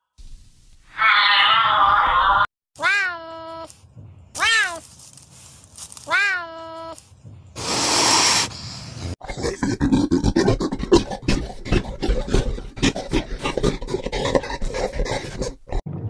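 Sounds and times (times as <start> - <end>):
wild cat meowing calls: 0.9 - 3.6
breathy hiss: 7.6 - 9.2.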